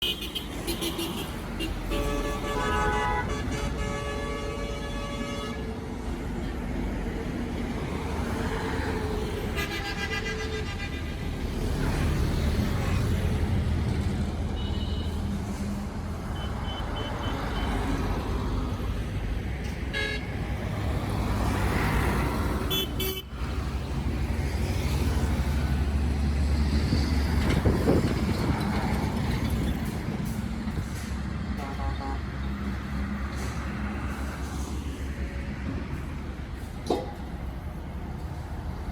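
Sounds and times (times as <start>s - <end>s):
vehicle horn: 0.0s - 5.8s, 9.4s - 12.2s, 19.9s - 20.3s, 22.7s - 23.3s, 31.6s - 32.3s
cars and trucks passing: 0.0s - 38.9s.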